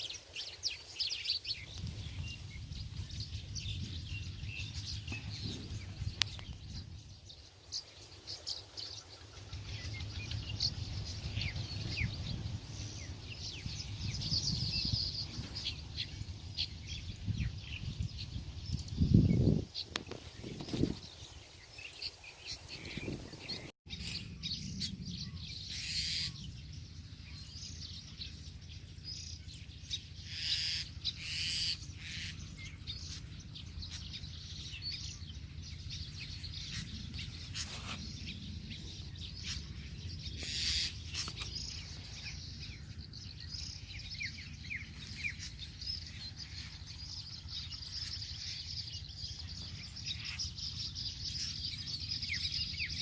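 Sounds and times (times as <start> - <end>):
wind rumble on microphone: 0.0 - 30.3, 31.8 - 53.0
small birds chirping: 0.0 - 53.0.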